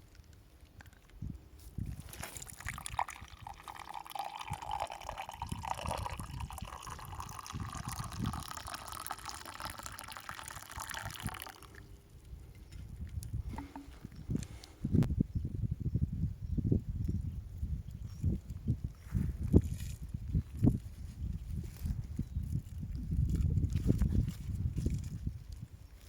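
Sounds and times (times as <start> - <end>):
liquid pouring: 2.3 - 11.8.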